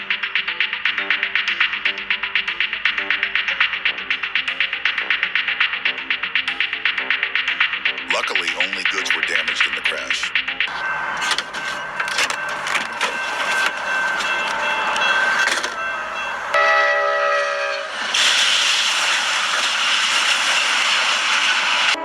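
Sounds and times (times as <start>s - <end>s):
scattered clicks: 0.0s - 15.8s
steady high tone: 0.0s - 18.0s
loud horn blast: 16.6s - 18.0s.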